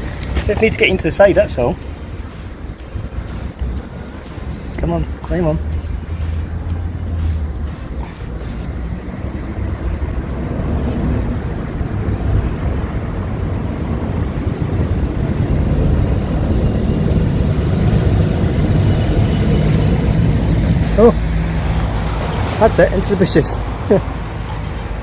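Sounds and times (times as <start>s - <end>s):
wind buffeting microphone: 7.9s - 21.0s.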